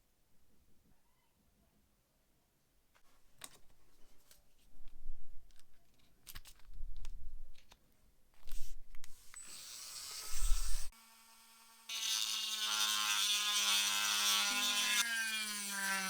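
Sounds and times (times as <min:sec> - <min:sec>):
hissing scrape: 0:10.0 - 0:10.9.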